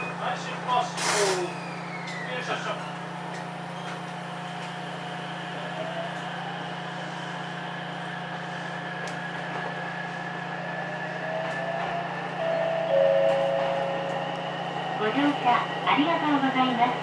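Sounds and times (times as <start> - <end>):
electric train motor whine: 1.4 - 17.0.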